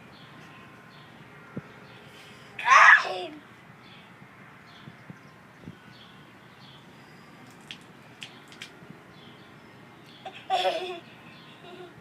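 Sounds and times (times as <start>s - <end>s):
water drips and splashes: 7.4s - 8.8s.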